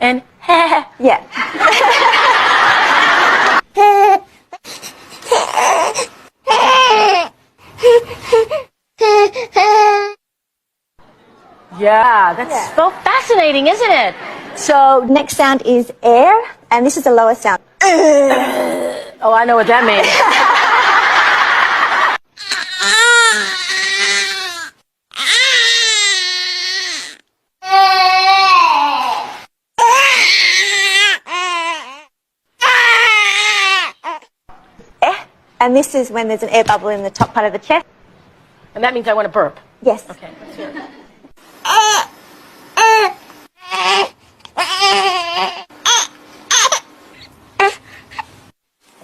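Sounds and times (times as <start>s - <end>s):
laughter: 1.3s - 3.6s, 19.7s - 22.2s, 40.2s - 41.2s
infant crying: 5.2s - 10.2s, 22.4s - 34.3s, 41.6s - 42.1s, 42.8s - 46.9s.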